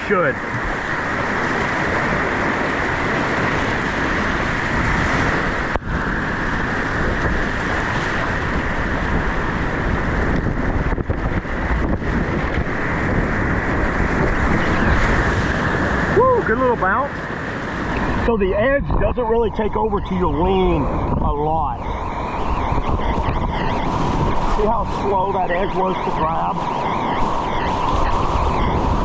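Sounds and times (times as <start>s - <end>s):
whitewater rushing: 0.0s - 10.2s, 11.5s - 18.8s.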